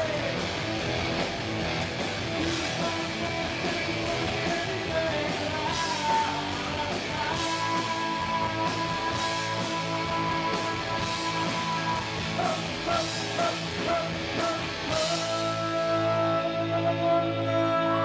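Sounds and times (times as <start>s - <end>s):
person singing: 0.0s - 0.4s, 2.4s - 18.0s
electric guitars: 0.0s - 18.0s
drum beat: 7.1s - 15.2s.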